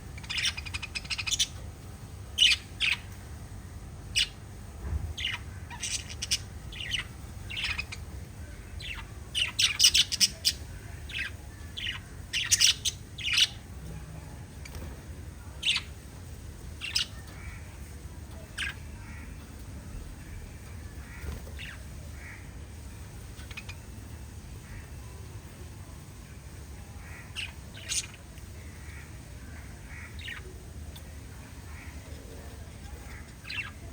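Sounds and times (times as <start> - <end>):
parrots chirping and squawking: 0.2 - 1.6, 2.4 - 3.2, 5.2 - 13.6, 15.6 - 16.0, 16.7 - 19.6, 20.6 - 25.1, 27.0 - 33.9.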